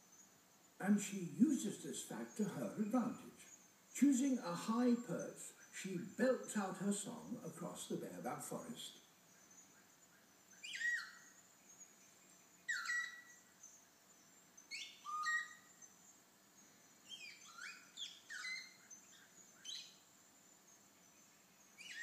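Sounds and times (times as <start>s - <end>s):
parrot whistled calls: 10.6s - 11.2s, 12.7s - 13.3s, 14.7s - 15.6s.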